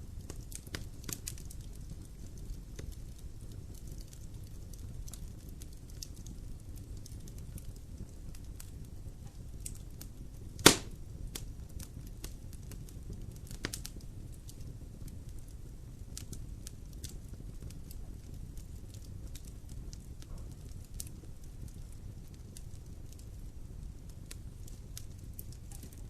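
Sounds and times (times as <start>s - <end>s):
fire crackling in fireplace: 0.0s - 26.0s
loud sharp pop of fire: 10.6s - 11.4s, 20.0s - 21.0s.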